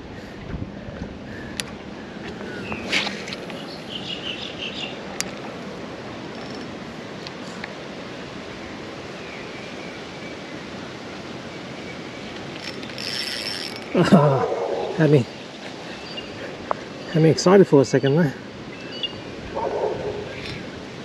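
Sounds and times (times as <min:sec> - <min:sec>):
wind and water hiss: 0:00.0 - 0:21.0.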